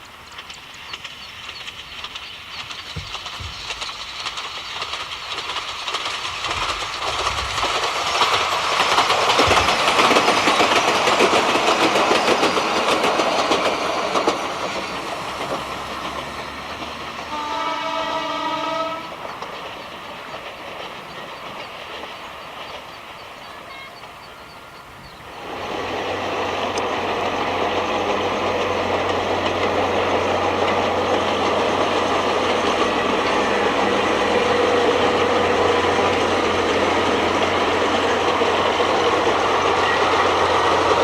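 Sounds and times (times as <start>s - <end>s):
train wheels clattering on rails: 0.0s - 41.0s
train horn blast: 17.3s - 19.1s.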